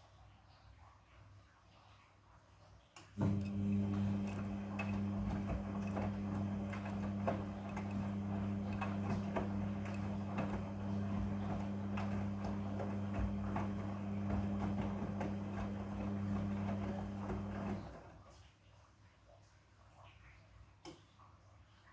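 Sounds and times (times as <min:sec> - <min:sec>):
washing machine running: 0:03.2 - 0:18.3.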